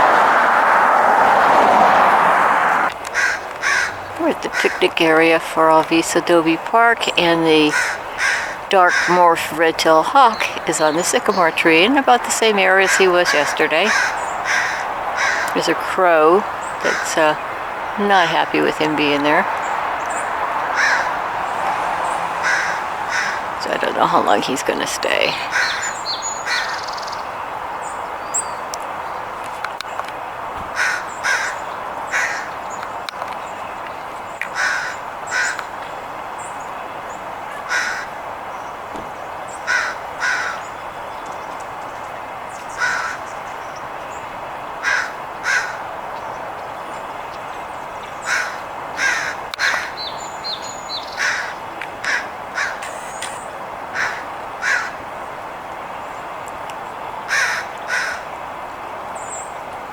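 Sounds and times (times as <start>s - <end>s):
crow cawing: 3.0s - 5.0s, 7.6s - 9.3s, 12.8s - 15.6s, 16.8s - 17.2s, 20.6s - 23.6s, 25.4s - 27.2s, 30.7s - 32.6s, 34.4s - 35.8s, 37.5s - 38.2s, 39.6s - 40.7s, 42.7s - 43.3s, 44.8s - 45.9s, 48.2s - 50.1s, 51.1s - 53.0s, 53.9s - 55.0s, 57.3s - 58.3s.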